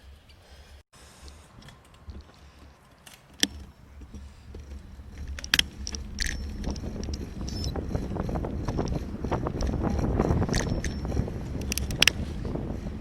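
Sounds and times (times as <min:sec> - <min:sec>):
bicycle rattling: 0:01.1 - 0:13.0
wind on microphone: 0:04.0 - 0:13.0
sharp metallic clicks: 0:05.1 - 0:12.2.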